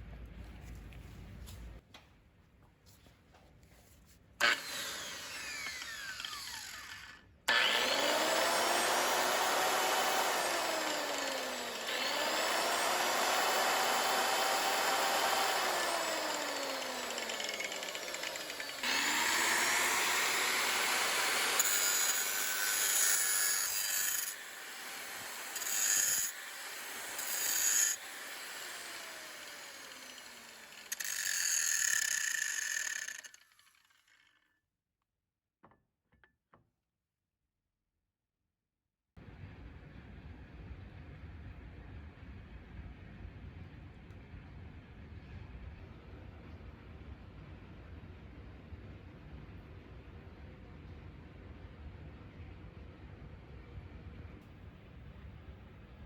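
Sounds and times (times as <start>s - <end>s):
angle grinder motor whine: 4.4s - 33.9s
harsh grinder bursts: 4.4s - 34.2s.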